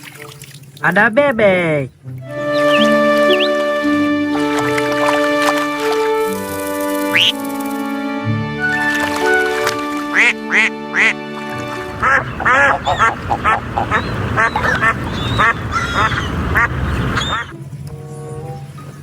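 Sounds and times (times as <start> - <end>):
light background music: 1.3 - 19.0
duck quacking: 7.1 - 7.4, 10.1 - 11.2, 11.9 - 17.5.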